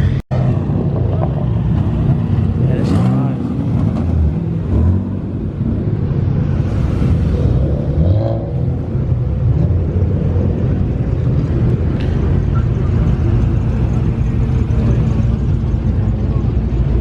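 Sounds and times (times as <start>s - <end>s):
car engine running: 6.3s - 17.0s.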